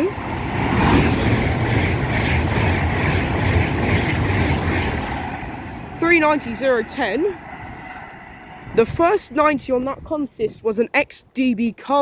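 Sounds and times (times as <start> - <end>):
electric train passing: 0.0 - 10.4
rush of wheels and air: 0.2 - 9.5.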